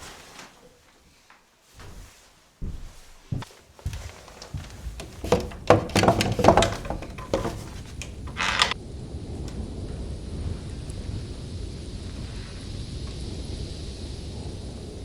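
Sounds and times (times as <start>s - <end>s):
objects knocking and clattering: 3.9s - 8.8s
low wind rumble: 7.1s - 15.0s.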